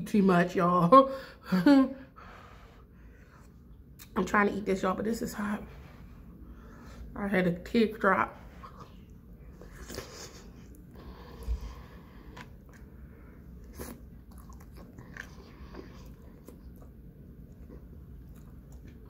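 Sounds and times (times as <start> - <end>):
person chewing food: 8.6 - 19.0.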